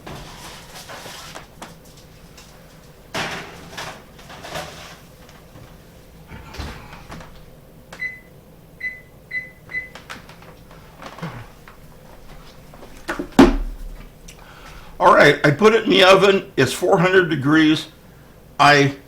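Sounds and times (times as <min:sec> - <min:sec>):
oven door shutting: 0:00.0 - 0:01.2, 0:03.1 - 0:05.1, 0:06.3 - 0:07.5
pans knocking and clattering: 0:03.1 - 0:05.0.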